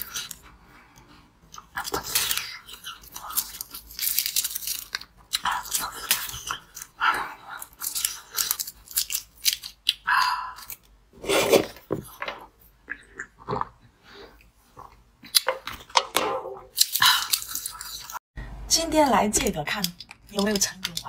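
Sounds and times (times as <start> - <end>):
crunchy biting and chewing: 1.5 - 11.6
foil wrapper crinkling: 3.1 - 5.1.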